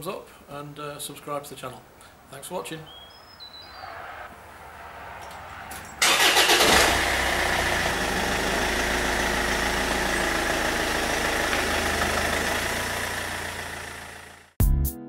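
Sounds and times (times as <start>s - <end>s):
starter motor cranking: 6.0s - 14.4s
car engine idling: 6.0s - 14.6s.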